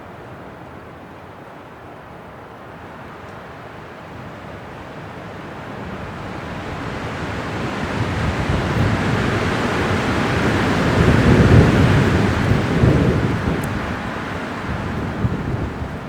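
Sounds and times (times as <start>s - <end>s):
wind gusting: 5.1s - 16.0s.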